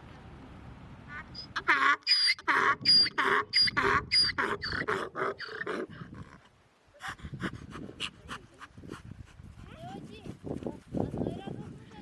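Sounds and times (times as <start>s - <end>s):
animal calling rapidly: 1.1s - 5.9s.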